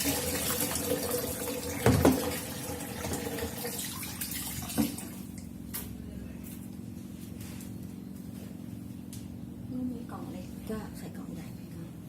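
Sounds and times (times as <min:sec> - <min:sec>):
tap water running into sink: 0:00.0 - 0:05.1
steady low hum: 0:04.4 - 0:12.0.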